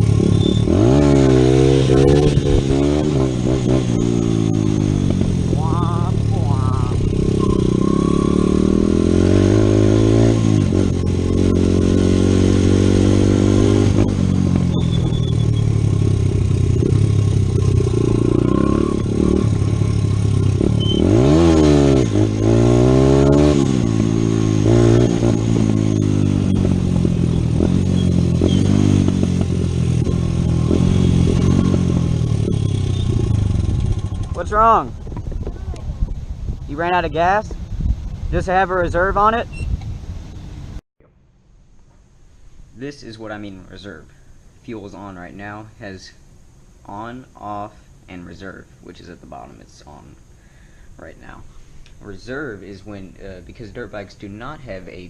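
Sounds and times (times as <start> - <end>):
dirt bike engine revving: 0.0 - 35.1.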